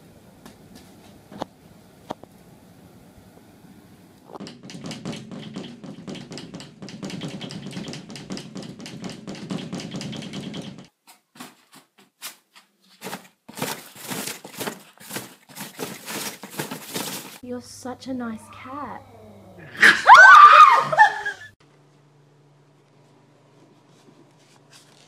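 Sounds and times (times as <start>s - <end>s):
rapid tapping and clicking: 4.4s - 10.9s.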